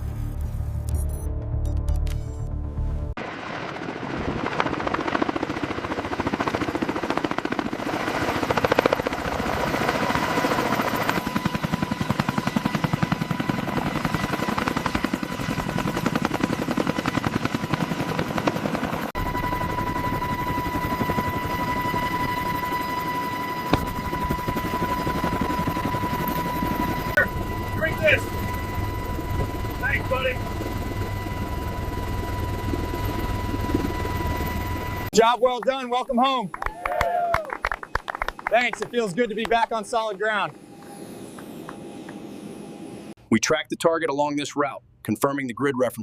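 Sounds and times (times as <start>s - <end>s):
helicopter rotors chopping: 3.2s - 36.6s, 37.6s - 43.1s
high whine: 19.2s - 35.1s, 38.9s - 43.1s.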